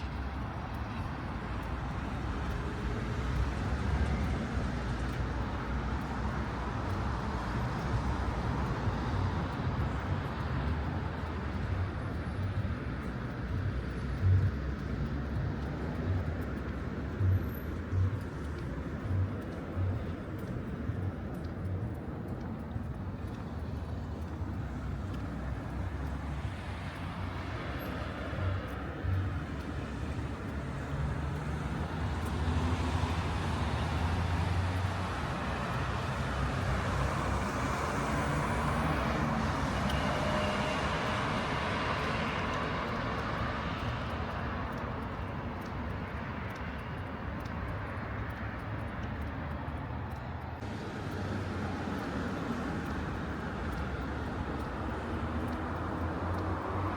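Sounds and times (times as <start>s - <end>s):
passing vehicles: 0.0s - 56.9s.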